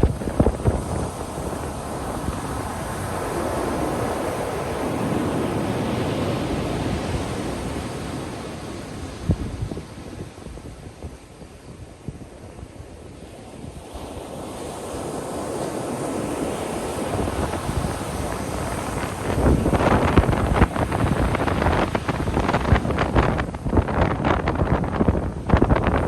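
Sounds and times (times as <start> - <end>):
ocean wave breaking: 0.0 - 9.6, 13.7 - 24.8
crackling wash of foam: 0.0 - 9.7, 14.2 - 26.0.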